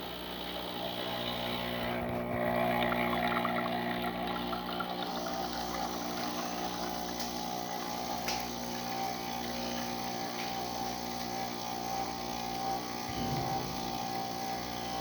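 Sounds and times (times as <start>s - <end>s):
espresso machine pump humming: 0.0s - 15.0s.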